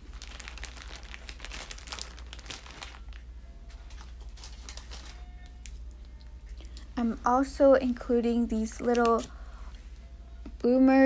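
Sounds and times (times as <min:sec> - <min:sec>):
packaging crinkling: 0:00.0 - 0:05.8.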